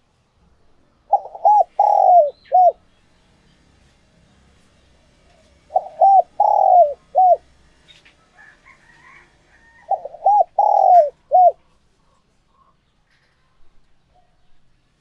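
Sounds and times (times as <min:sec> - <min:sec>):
dove cooing: 0:01.1 - 0:02.8, 0:05.2 - 0:07.6, 0:08.7 - 0:11.7
small birds chirping: 0:01.1 - 0:04.0, 0:04.7 - 0:08.1, 0:09.9 - 0:13.3.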